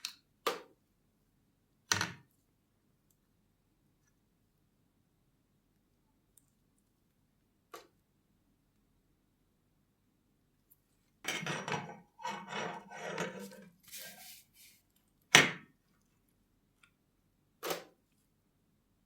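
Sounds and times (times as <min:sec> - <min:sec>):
scraping and rustling strokes: 0:12.2 - 0:14.9.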